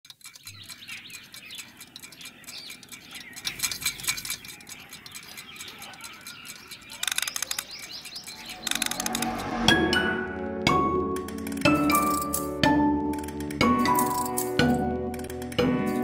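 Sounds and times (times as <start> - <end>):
birds chirping and twittering: 0.0 - 10.6
tinkling chime-like clicks: 0.1 - 9.7, 11.2 - 16.0.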